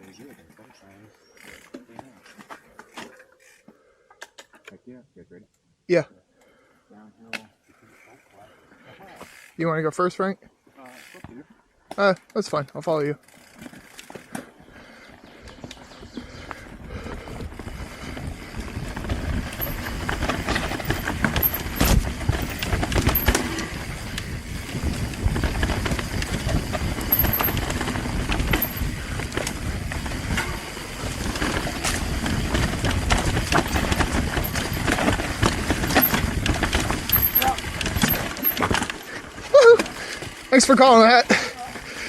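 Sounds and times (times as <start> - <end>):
bike tyres on rocky trail: 0.0 - 3.8, 7.5 - 42.0
bike knocks and rattles: 17.3 - 40.5.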